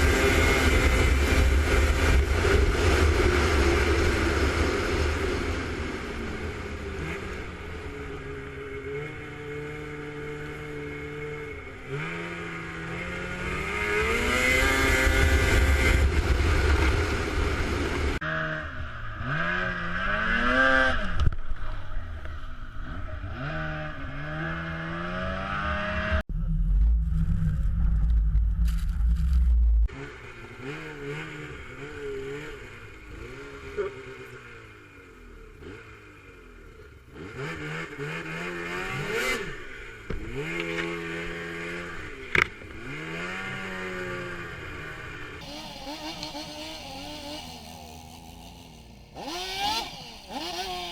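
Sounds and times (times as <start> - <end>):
vehicle engine revving: 0.0 - 21.3, 37.1 - 50.9.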